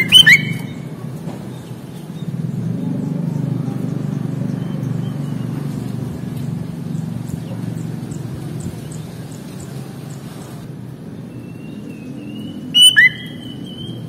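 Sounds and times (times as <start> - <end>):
faint high bird chirps: 0.0 - 1.8, 11.3 - 14.0.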